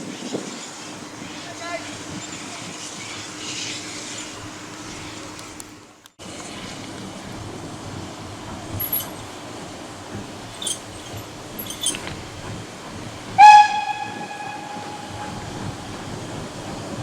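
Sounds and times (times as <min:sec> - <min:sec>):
faint metallic clinks: 0:08.8 - 0:09.4, 0:10.4 - 0:12.5
steam locomotive whistle blast: 0:13.4 - 0:15.9.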